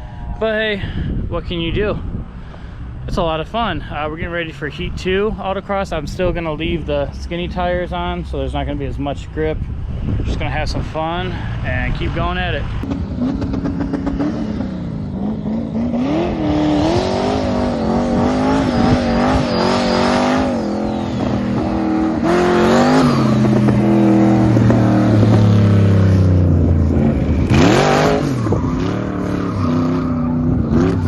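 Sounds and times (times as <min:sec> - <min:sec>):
car engine revving: 0:11.3 - 0:31.0.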